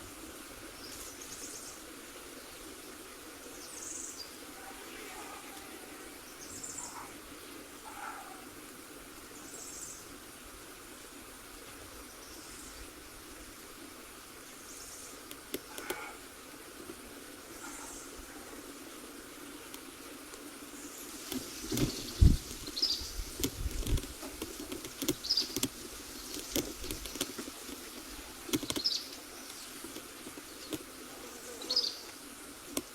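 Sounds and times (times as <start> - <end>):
steady hiss: 0.0 - 32.9.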